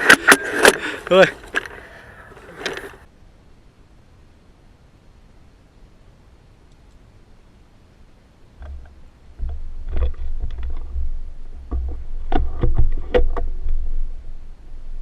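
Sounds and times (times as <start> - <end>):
sharp clicks and knocks: 8.6 - 13.8.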